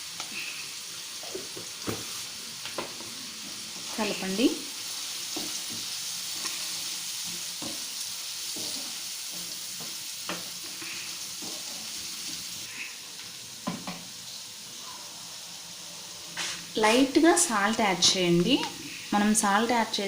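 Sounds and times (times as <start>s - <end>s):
onions sizzling in oil: 0.0s - 20.0s
spatula scraping pan: 8.5s - 12.8s.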